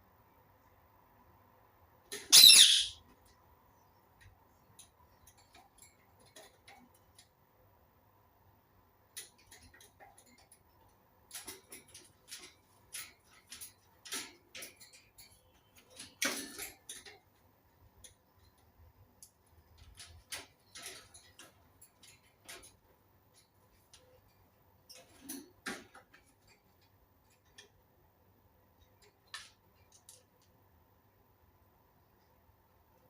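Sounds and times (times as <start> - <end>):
parakeet clicking and scratching: 2.1 - 7.5, 9.0 - 30.8
harsh parakeet call: 2.3 - 3.0.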